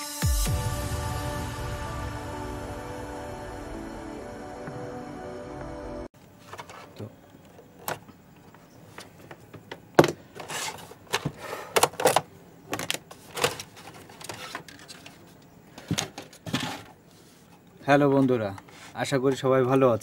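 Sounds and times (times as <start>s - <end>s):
music: 0.0s - 6.1s
clicks and knocks of objects handled: 6.4s - 20.0s.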